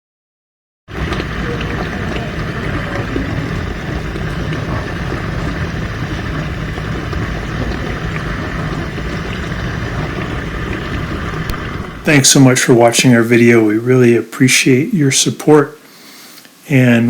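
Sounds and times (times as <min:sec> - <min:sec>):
dishwasher pump hum: 0:00.9 - 0:13.7
water rushing and spraying: 0:00.9 - 0:15.6.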